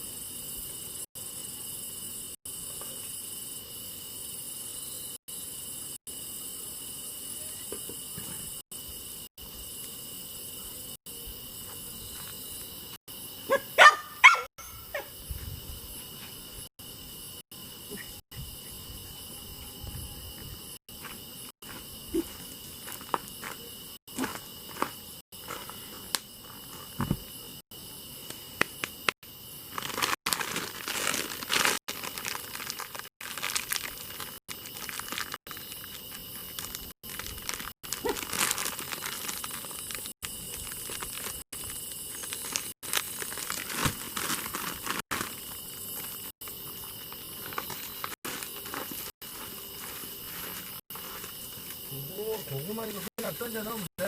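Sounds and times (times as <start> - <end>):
crickets chirring: 0.0 - 54.0
dog yelping: 13.5 - 15.1.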